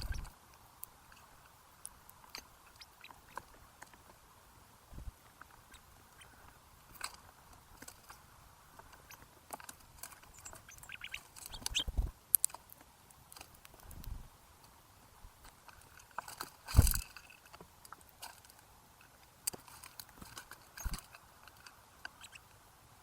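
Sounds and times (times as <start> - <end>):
birds pecking at a feeder: 0.0 - 22.6.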